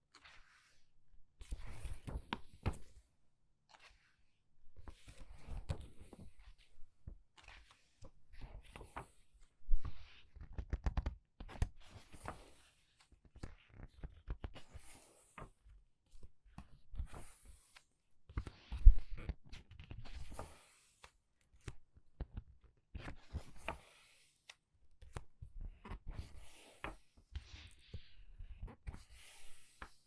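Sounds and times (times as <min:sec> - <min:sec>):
book pages turning: 0:00.1 - 0:00.8, 0:01.4 - 0:02.9, 0:07.4 - 0:09.3, 0:09.9 - 0:12.7.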